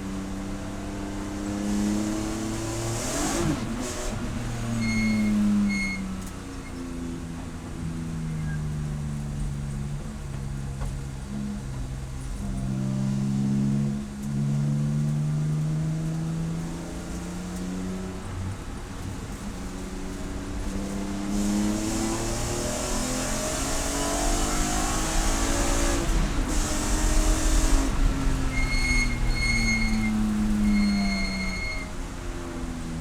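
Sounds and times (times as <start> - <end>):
race car engine revving: 19.2 - 31.9.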